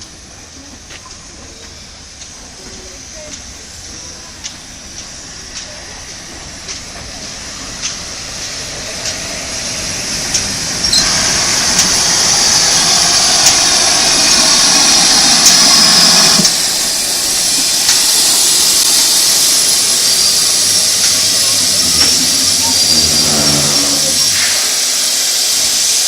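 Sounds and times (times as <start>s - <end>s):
steam locomotive hissing: 0.0s - 26.0s
low rumble: 20.6s - 24.8s.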